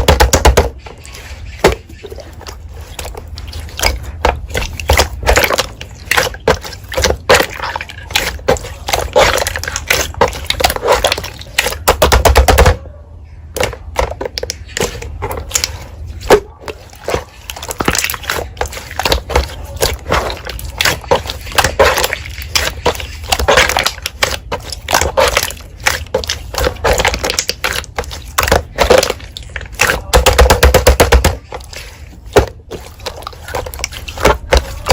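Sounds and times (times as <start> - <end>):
slime squished by hand: 13.6 - 34.9.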